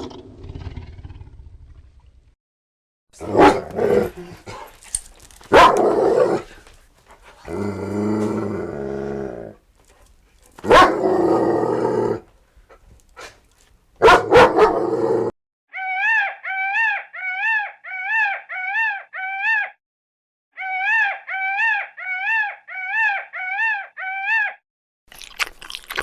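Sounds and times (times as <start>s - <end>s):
dog barking: 3.3s - 3.8s, 5.5s - 6.4s, 10.6s - 11.2s, 14.0s - 14.9s
dog growling: 7.4s - 9.6s.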